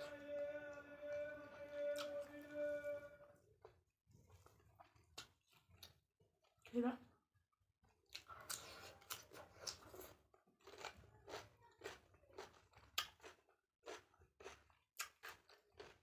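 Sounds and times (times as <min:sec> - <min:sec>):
person chewing crunchy food: 0:03.6 - 0:06.1, 0:07.8 - 0:16.0.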